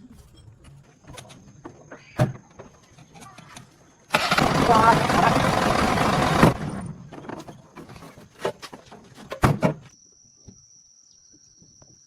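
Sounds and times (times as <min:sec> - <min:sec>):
crickets trilling: 0:09.8 - 0:12.0.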